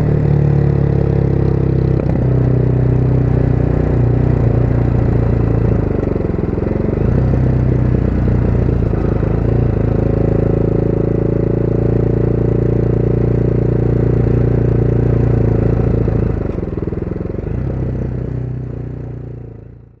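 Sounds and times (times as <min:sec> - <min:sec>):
wind and road noise: 0:00.0 - 0:18.7
motorcycle engine running: 0:00.0 - 0:20.0.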